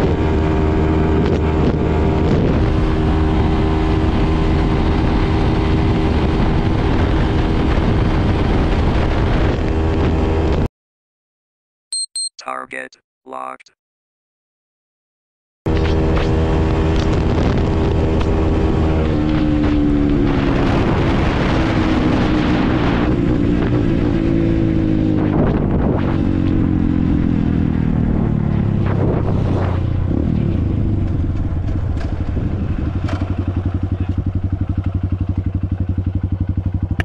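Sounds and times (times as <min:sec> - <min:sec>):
motorcycle engine revving: 0:00.0 - 0:10.7, 0:15.7 - 0:37.0
motorcycle engine idling: 0:31.2 - 0:37.0.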